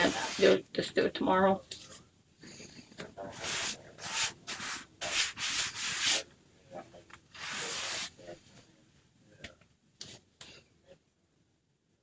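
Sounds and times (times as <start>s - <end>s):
rubbing strokes across a surface: 0.0s - 0.6s, 3.2s - 6.2s, 7.4s - 8.2s.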